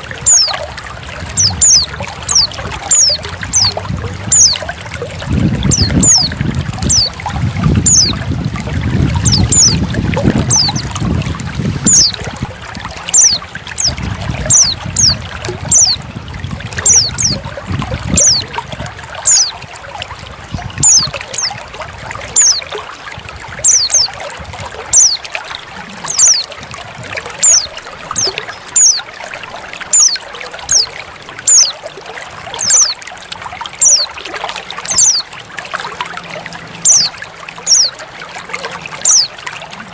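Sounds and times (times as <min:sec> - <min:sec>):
trickling water: 0:00.0 - 0:39.9
bird calls high notes: 0:00.2 - 0:00.6, 0:01.4 - 0:04.7, 0:19.3 - 0:19.6, 0:22.4 - 0:22.6, 0:23.6 - 0:24.2, 0:24.9 - 0:25.2, 0:26.0 - 0:26.5, 0:27.4 - 0:29.1, 0:29.9 - 0:31.8, 0:32.6 - 0:33.0, 0:33.8 - 0:34.1, 0:34.8 - 0:35.3, 0:36.8 - 0:38.0, 0:39.0 - 0:39.4.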